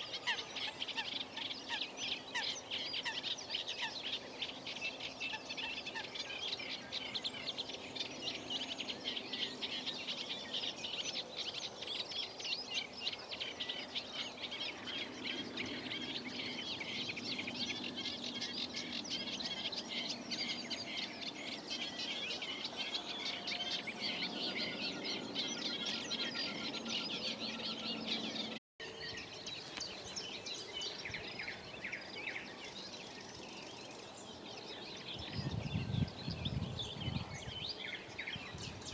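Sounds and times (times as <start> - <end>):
many birds chirping and singing: 0.0 - 38.9.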